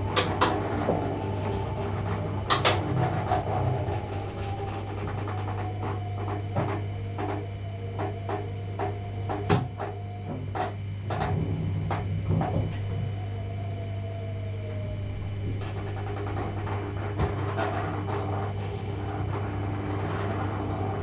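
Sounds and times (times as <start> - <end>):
electric train cab hum: 0.0 - 21.0
faint motor whine: 0.0 - 21.0.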